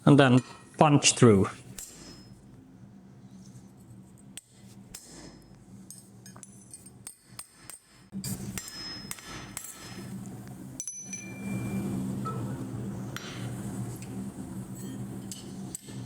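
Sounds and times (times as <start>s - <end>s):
hammer striking metal punch: 7.0s - 10.1s.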